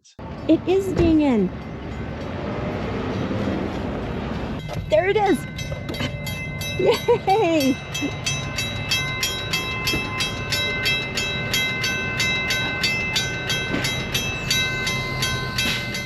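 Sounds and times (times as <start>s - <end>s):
railroad crossing bell dinging: 4.6s - 16.0s.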